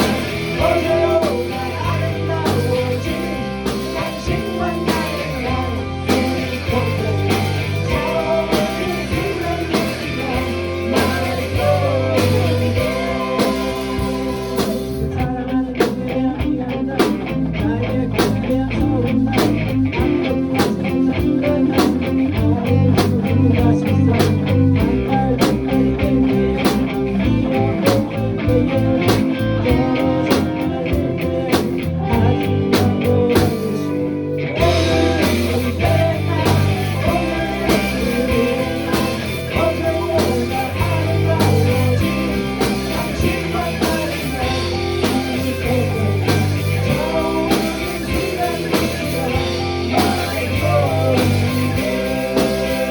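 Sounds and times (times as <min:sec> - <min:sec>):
drum kit beat: 0:00.0 - 0:16.0, 0:19.4 - 0:34.0, 0:34.6 - 0:52.9
bass guitar: 0:00.0 - 0:52.9
electric guitar: 0:00.0 - 0:52.9.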